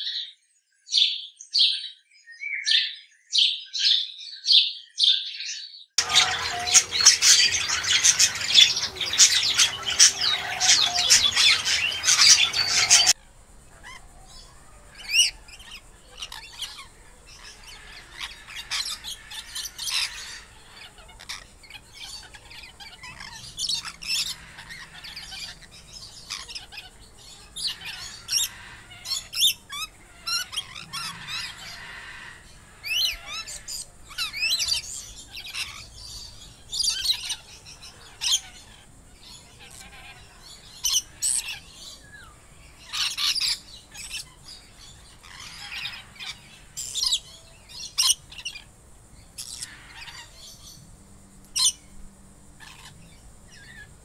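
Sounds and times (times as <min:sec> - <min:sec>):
flock of birds calling: 0:06.0 - 0:50.9, 0:52.6 - 0:54.0.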